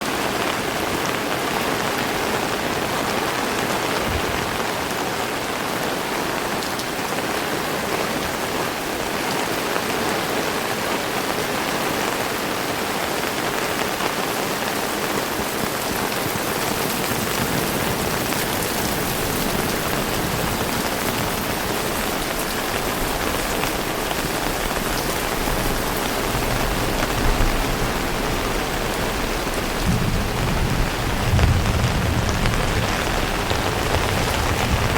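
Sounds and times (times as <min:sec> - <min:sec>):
heavy rain hissing: 0:00.1 - 0:34.9.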